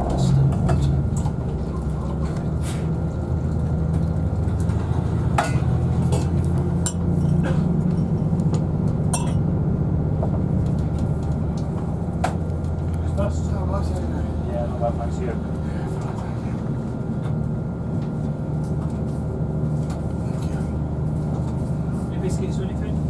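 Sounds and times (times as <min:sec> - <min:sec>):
train rumble inside carriage: 0:00.0 - 0:23.0
cups and crockery clinking: 0:09.2 - 0:09.4.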